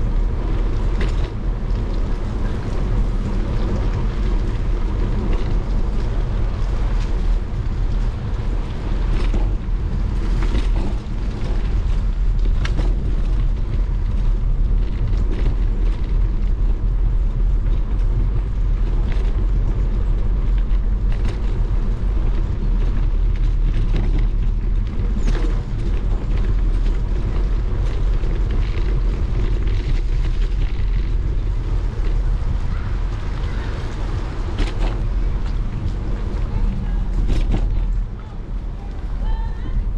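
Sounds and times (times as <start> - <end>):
bicycle clicks and rattles: 0.0 - 39.9
wind buffeting microphone: 0.0 - 39.9.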